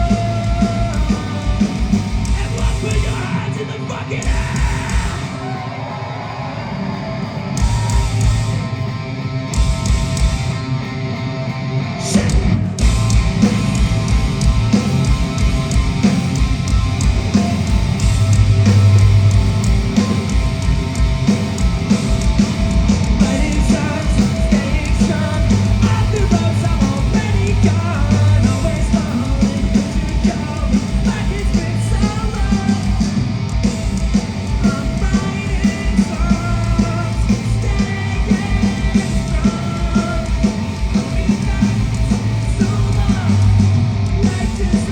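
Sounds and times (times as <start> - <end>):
punk rock band playing live: 0.0 - 44.9
person singing: 23.2 - 33.2.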